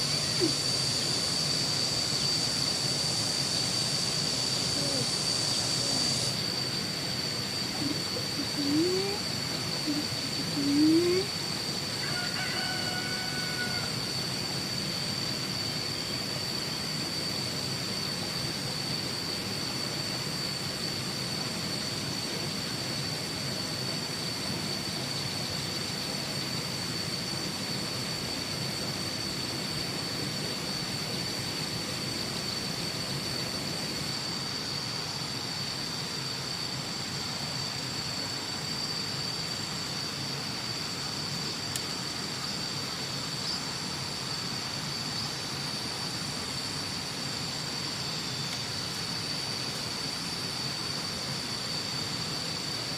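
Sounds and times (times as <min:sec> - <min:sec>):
constant hiss: 0:00.0 - 0:52.9
insect chirring: 0:00.0 - 0:52.9
faint rooster crowing: 0:11.9 - 0:14.2.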